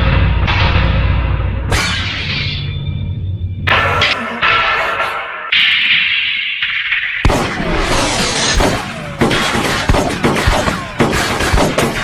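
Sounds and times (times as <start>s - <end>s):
gunshots and booms: 7.2s - 12.0s.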